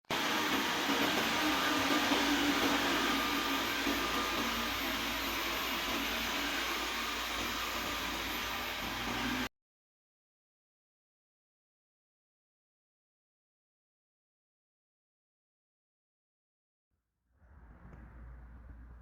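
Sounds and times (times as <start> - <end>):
robot vacuum whirring: 0.0 - 9.5.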